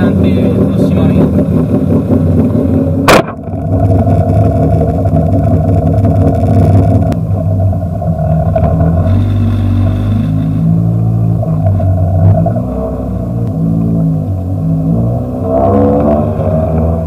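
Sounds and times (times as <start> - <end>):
car engine running from inside cabin: 0.0 - 17.0
sharp knock: 3.0 - 3.4.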